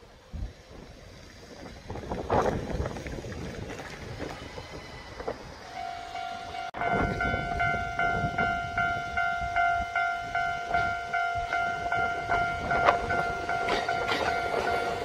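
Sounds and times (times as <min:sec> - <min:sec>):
train rumble and clatter: 0:00.0 - 0:15.0
ringing tone: 0:05.7 - 0:15.0.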